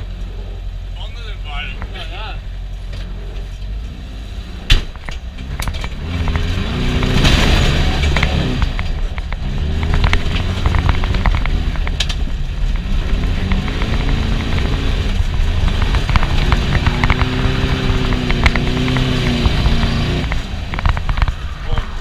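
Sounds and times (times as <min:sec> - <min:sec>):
car engine revving: 0:00.0 - 0:22.0
car body knocks and rattles: 0:04.6 - 0:21.4.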